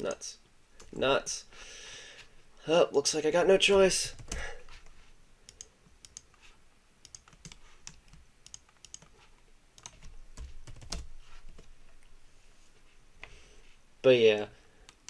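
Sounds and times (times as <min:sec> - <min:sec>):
keyboard and mouse clicks: 0:05.5 - 0:06.4, 0:07.0 - 0:11.7.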